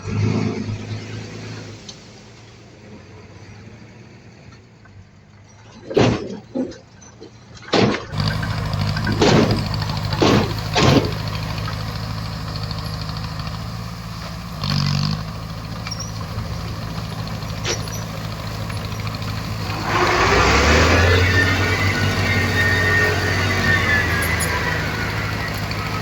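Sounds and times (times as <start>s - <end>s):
sharp knocks: 7.7s - 11.8s
heavy machine diesel engine: 8.0s - 26.0s.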